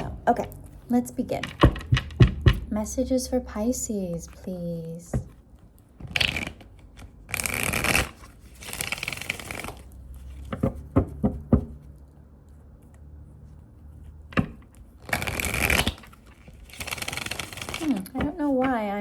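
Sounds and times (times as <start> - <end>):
cards being riffle shuffled: 5.9 - 10.9, 14.8 - 18.8.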